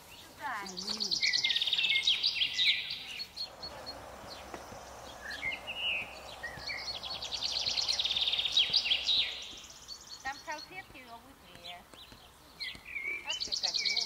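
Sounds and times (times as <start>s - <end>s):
background hiss: 0.0s - 14.0s
songbirds trilling: 0.0s - 14.0s
short bird chirps: 0.9s - 10.7s.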